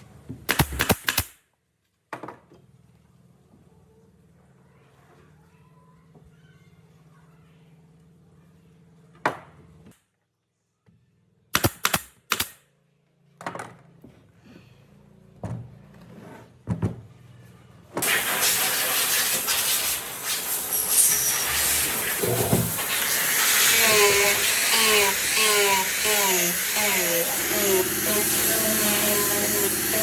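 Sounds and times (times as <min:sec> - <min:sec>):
power tool running: 0:18.0 - 0:30.0.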